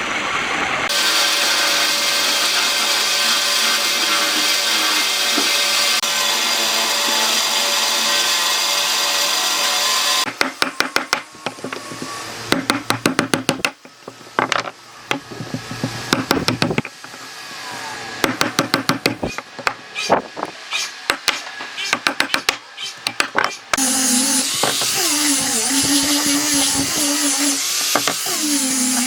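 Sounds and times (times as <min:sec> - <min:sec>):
power tool on wood: 0:00.9 - 0:29.0
sharp knocks on wood: 0:10.3 - 0:11.8.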